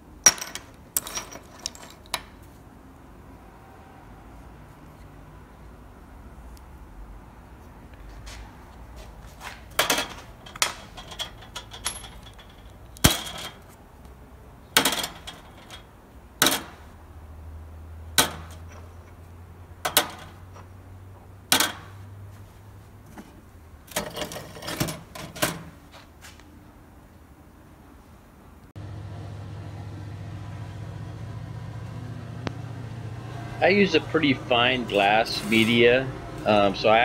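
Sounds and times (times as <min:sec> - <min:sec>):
metal caster parts clanking: 0:00.3 - 0:02.4, 0:09.7 - 0:13.8, 0:14.7 - 0:16.8, 0:18.2 - 0:19.2.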